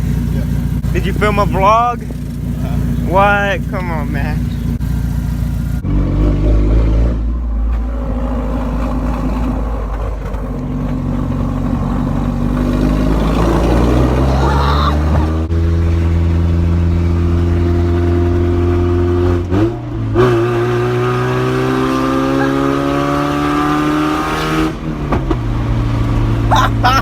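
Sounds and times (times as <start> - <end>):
car engine revving through loud exhaust: 0.0 - 27.0.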